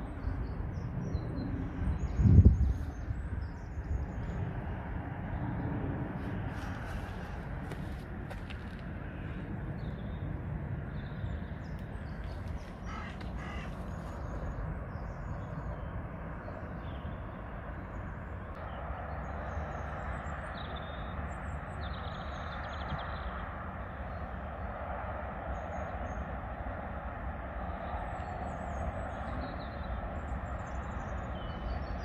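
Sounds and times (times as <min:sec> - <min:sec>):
broad rushing noise: 0:00.0 - 0:31.4
low outdoor rumble: 0:00.0 - 0:32.0
birds calling: 0:10.9 - 0:24.4.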